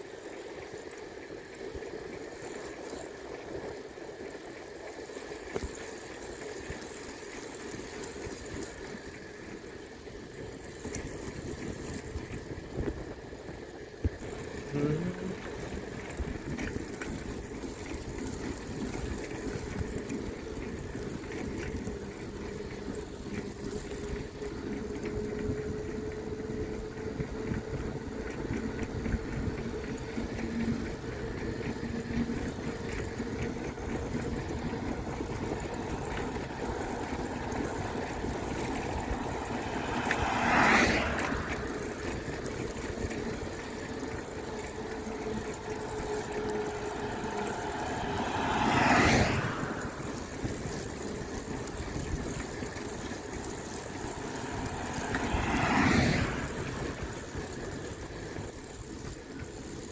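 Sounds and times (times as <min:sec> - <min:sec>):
wind and road noise: 0:00.0 - 0:59.9
motor vehicle passing: 0:00.3 - 0:59.9.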